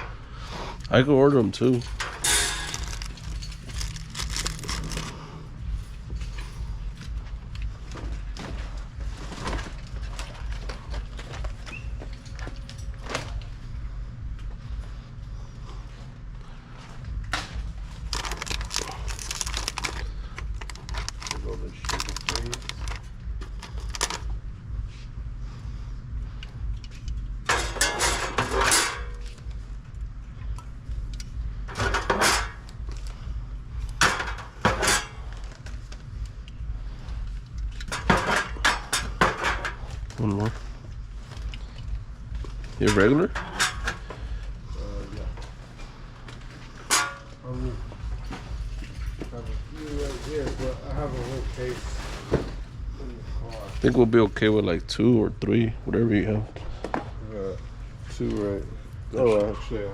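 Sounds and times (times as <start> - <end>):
steady low hum: 0.0 - 59.9
bottles and cans clunking: 31.7 - 32.7, 34.0 - 35.4, 37.8 - 40.0.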